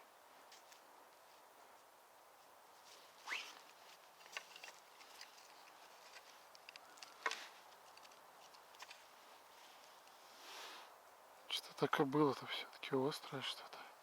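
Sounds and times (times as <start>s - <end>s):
faint scrapes in soil: 2.7s - 6.6s, 7.3s - 11.0s.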